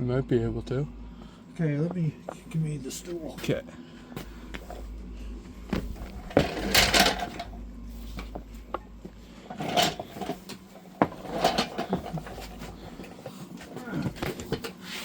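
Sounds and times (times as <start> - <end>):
rustling scrape: 4.2 - 13.5
handling knocks and clicks: 5.7 - 8.9.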